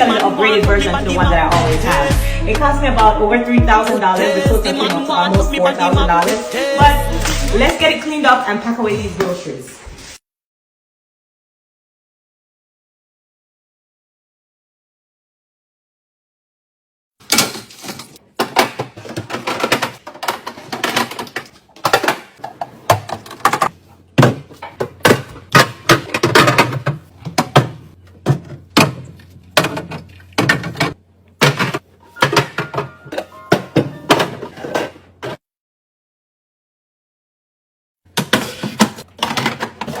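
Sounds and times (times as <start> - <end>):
containers knocking and clattering: 17.4 - 35.4, 38.1 - 40.0.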